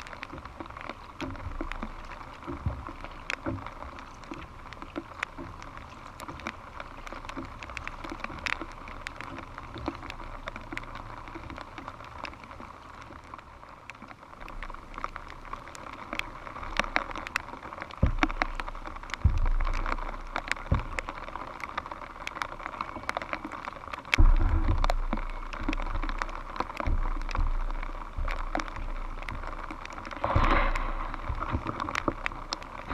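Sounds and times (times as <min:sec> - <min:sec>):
rain pattering on plastic: 0:00.0 - 0:32.9
wind buffeting microphone: 0:24.2 - 0:32.9.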